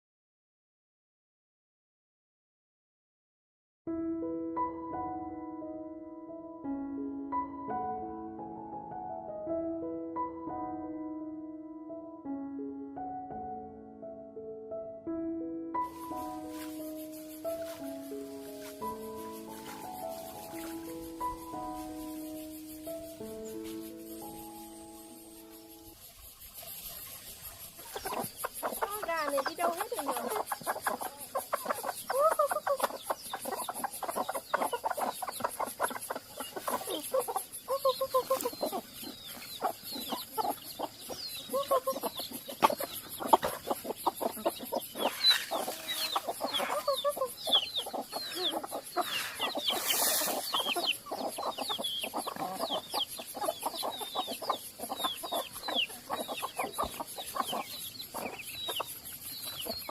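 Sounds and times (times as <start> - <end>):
chickens clucking: 15.8 - 59.9.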